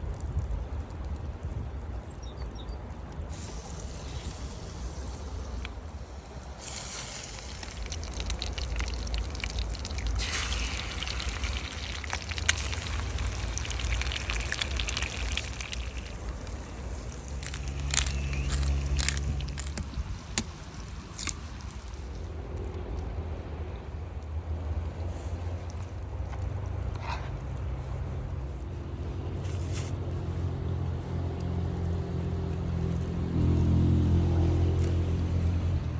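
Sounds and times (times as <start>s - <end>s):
steady low rumble: 0.0s - 35.9s
food squishing in a pan: 6.6s - 22.1s.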